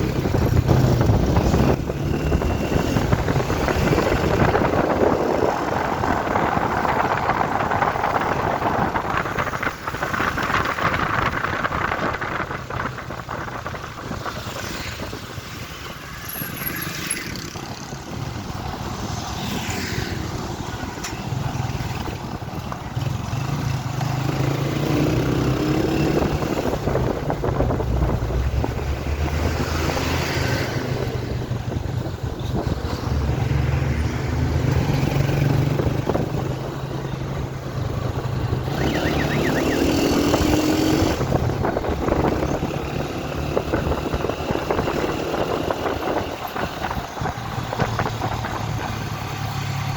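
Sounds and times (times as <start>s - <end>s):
road traffic noise: 0.0s - 49.9s
truck engines running: 0.0s - 49.9s.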